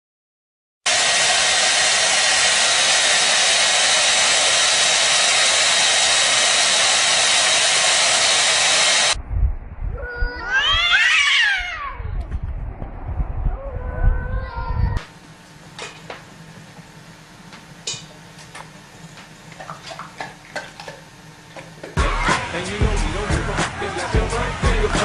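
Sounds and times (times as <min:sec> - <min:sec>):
loud steady hissing: 0:00.9 - 0:09.2
cat meowing: 0:10.0 - 0:12.2.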